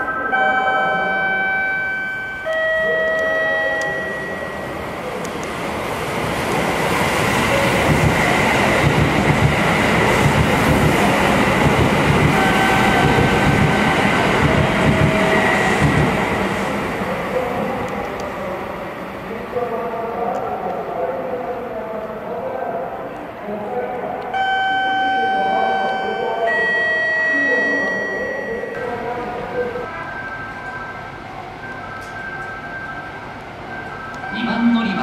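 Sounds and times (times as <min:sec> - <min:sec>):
train rumbling past: 0:02.6 - 0:19.7.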